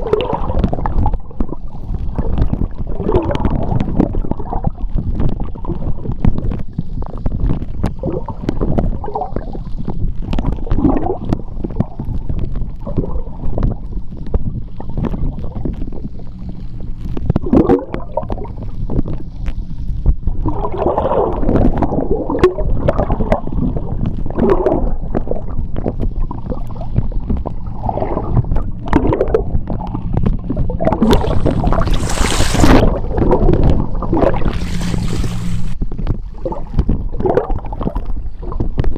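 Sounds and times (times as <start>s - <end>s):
underwater rumble of sea: 0.0s - 38.9s
rush of bubbles: 30.8s - 35.8s.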